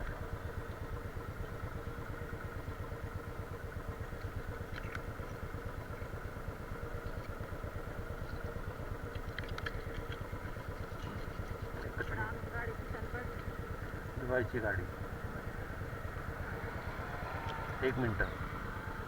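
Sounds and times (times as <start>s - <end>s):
motorcycle engine putter: 4.1s - 12.1s.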